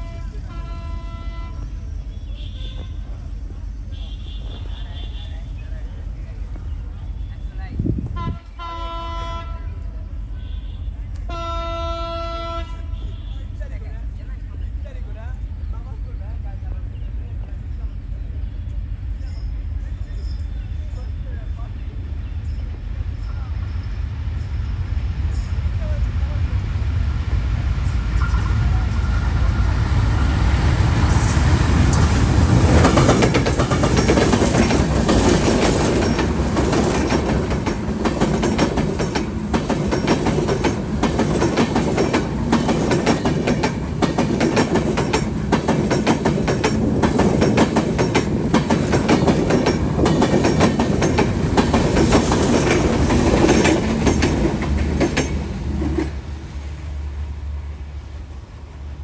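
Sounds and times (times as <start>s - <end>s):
loud train rumble: 0.0s - 59.0s
train wheels clattering over joints: 27.8s - 56.3s.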